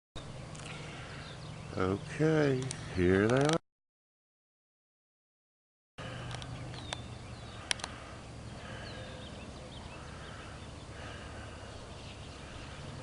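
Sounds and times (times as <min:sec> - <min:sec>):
marsh birds calling: 0:00.2 - 0:03.6, 0:06.0 - 0:13.0
sharp clicks: 0:02.5 - 0:03.6, 0:06.2 - 0:07.0, 0:07.6 - 0:08.0.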